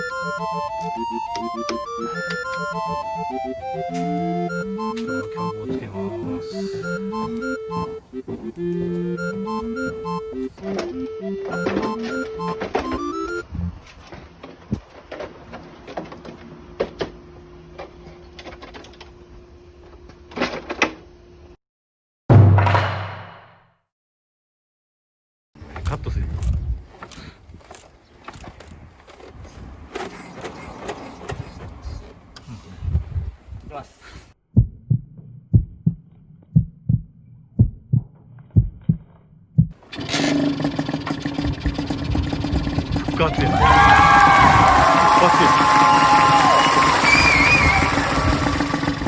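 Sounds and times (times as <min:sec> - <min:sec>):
low thumps of engine turning over: 0:39.6 - 0:49.0
two-stroke engine kick-started: 0:39.8 - 0:49.0
tools and metal parts clicking: 0:39.9 - 0:43.2.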